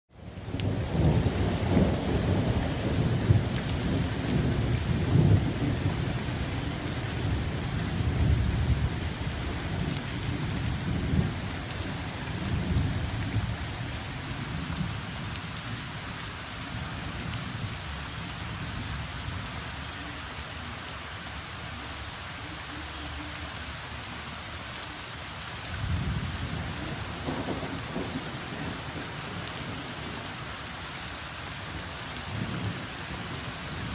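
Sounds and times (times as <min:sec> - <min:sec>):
steady rain falling: 0:00.1 - 0:33.9
thunder rumbling: 0:00.3 - 0:15.7, 0:25.8 - 0:30.4.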